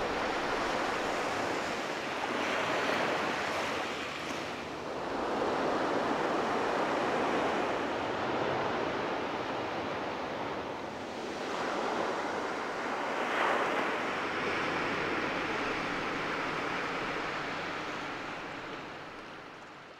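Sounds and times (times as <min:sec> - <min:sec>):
ocean surf breaking: 0:00.0 - 0:09.7.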